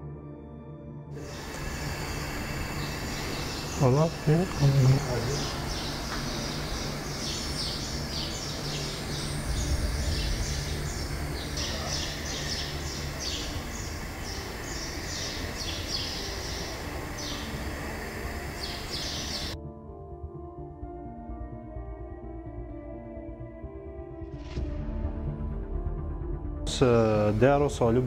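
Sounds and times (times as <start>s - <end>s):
steady low rumble: 1.2s - 15.6s
small birds chirping: 1.2s - 19.6s.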